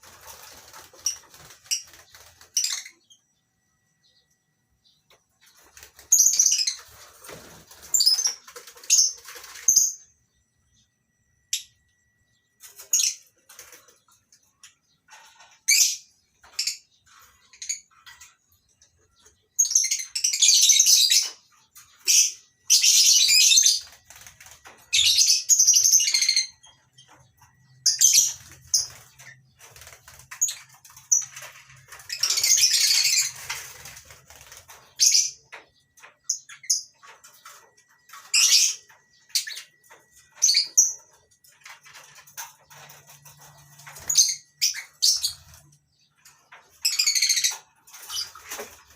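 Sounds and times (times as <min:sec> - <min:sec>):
lovebirds chattering and screeching: 0:12.7 - 0:48.9.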